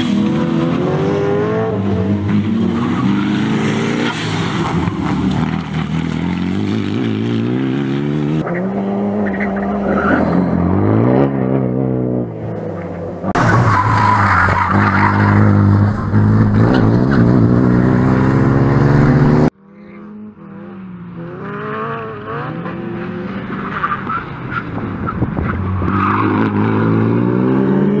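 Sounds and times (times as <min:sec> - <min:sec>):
car engine revving hard: 0:14.6 - 0:19.5.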